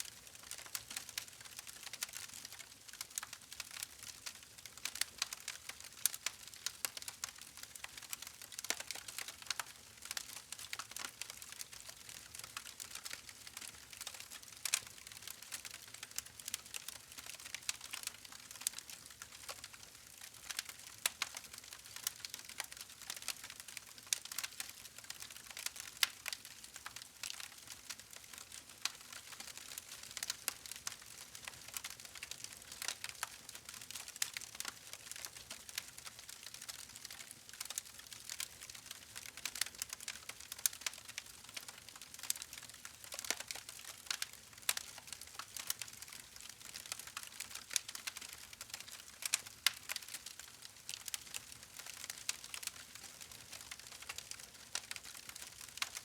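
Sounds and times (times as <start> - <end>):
wood fire crackling: 0.1 - 56.0.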